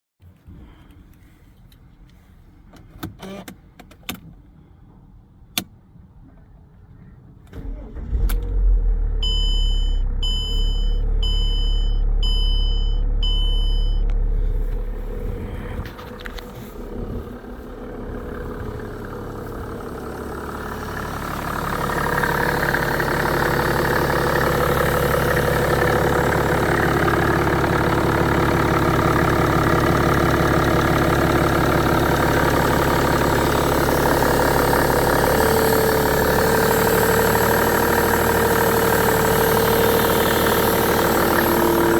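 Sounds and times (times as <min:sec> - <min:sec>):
diesel engine idling: 0:07.6 - 0:41.9
dashboard warning chime beeping: 0:09.2 - 0:14.1.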